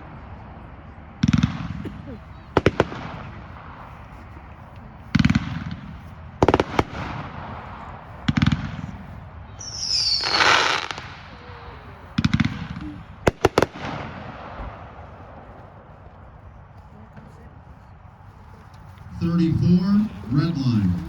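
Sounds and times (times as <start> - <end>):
fireworks bangs: 1.2 - 4.1, 5.1 - 15.5, 19.0 - 21.0
fireworks crackling: 2.5 - 15.7, 18.8 - 21.0.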